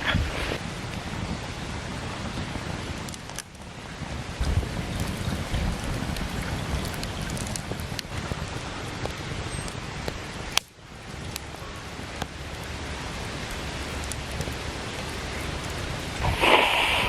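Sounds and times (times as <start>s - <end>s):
rushing outdoor noise: 0.0s - 17.0s
small clicks and ticks: 3.0s - 3.6s, 4.4s - 11.5s, 13.4s - 16.2s.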